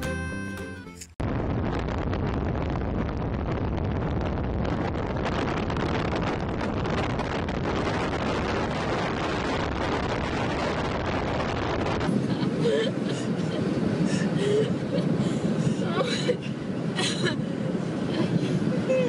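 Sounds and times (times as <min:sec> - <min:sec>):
music: 0:00.0 - 0:01.2
wind and road noise in car: 0:01.2 - 0:19.0
wind buffeting microphone: 0:01.2 - 0:19.0.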